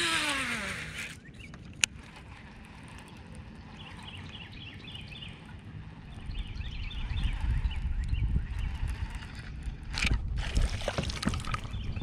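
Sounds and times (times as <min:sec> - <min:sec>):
whirr falling in pitch: 0:00.0 - 0:01.6
birds chirping: 0:00.0 - 0:09.9, 0:11.5 - 0:12.0.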